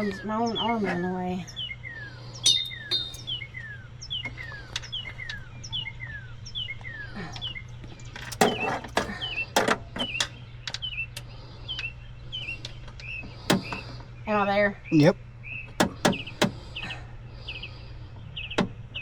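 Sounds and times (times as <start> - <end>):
songbird chirping: 0.0 - 18.6
low hum: 2.5 - 3.7.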